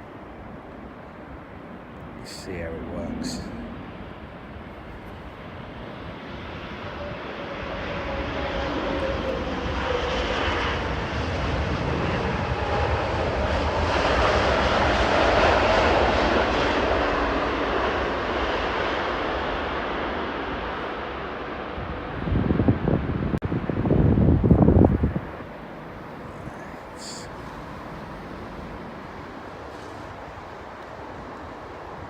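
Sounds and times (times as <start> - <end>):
jet engine roar: 0.0 - 32.0
faint falling whine: 2.0 - 6.1.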